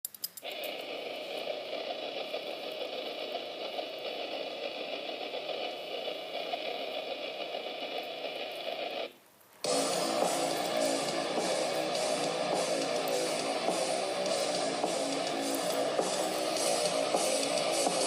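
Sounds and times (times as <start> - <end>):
static-like noise: 0.3 - 18.0
electric guitar rock music: 9.7 - 18.0.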